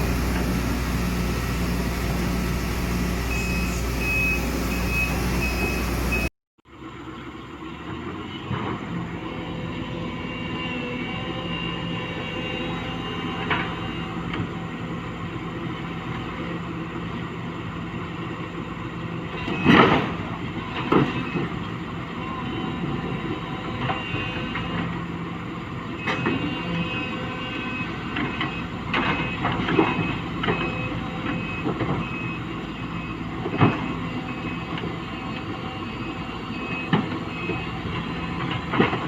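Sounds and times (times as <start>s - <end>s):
engine knocks: 0.0s - 6.3s
engine running steadily: 0.0s - 39.0s.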